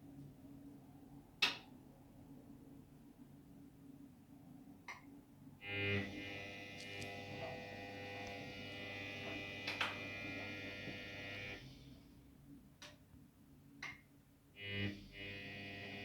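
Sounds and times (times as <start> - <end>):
washing machine motor humming: 6.1 - 11.6.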